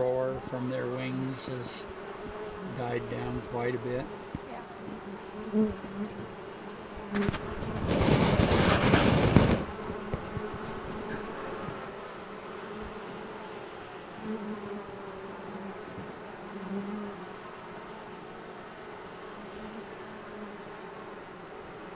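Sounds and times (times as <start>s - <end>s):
honeybee swarm buzzing: 0.0s - 21.9s
loud burst of noise: 7.6s - 9.7s.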